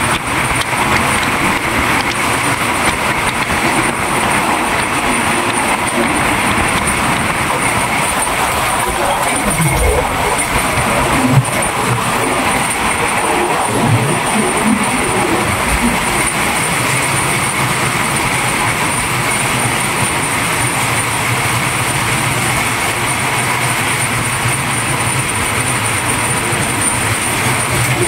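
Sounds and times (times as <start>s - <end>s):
train rushing noise: 0.0s - 28.0s
low hum: 8.2s - 16.4s.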